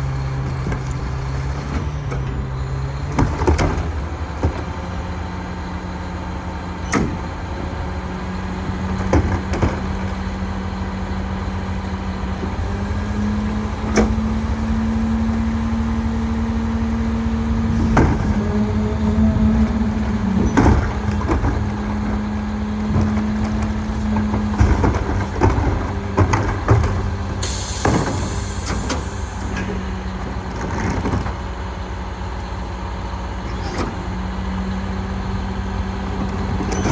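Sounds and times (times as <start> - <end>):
garbage truck engine running: 0.0 - 36.9
metal clanks and knocks: 19.6 - 31.5.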